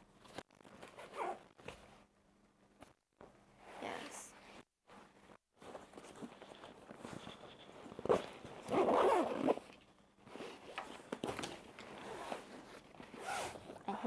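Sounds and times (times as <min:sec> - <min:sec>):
backpack zipper being pulled: 0:08.6 - 0:09.7, 0:13.1 - 0:13.8
fabric rustling: 0:10.3 - 0:14.0.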